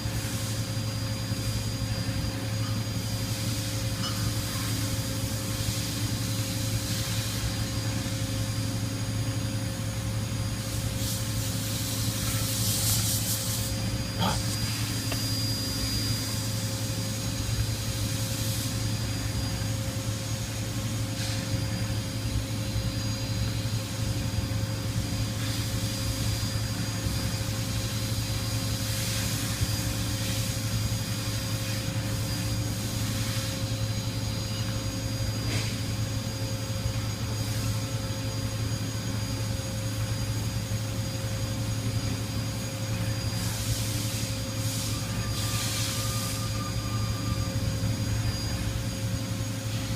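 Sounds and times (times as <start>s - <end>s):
milling machine humming and whining: 0.0s - 49.9s
short hissing bursts: 10.7s - 15.0s, 43.4s - 46.4s.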